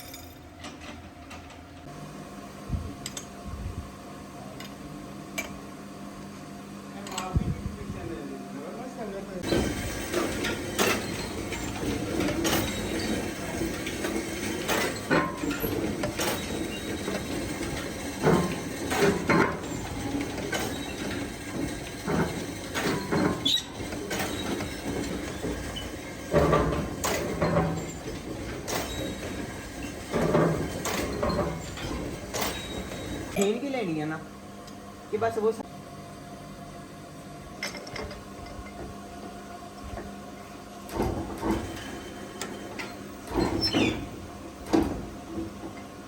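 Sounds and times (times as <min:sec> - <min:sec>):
workshop machinery rumbling: 0:00.0 - 0:46.0
metallic clanks and knocks: 0:09.4 - 0:33.4.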